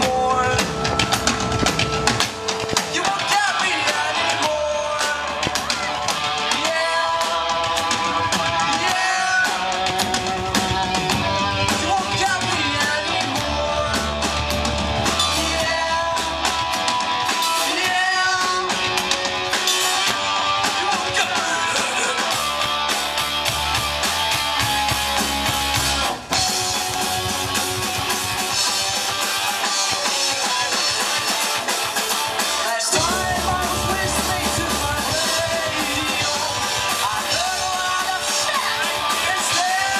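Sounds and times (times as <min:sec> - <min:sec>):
shouted vocals: 0:00.0 - 0:22.6, 0:32.4 - 0:39.9
distorted electric guitars: 0:00.0 - 0:39.9
drum kit: 0:00.0 - 0:39.9.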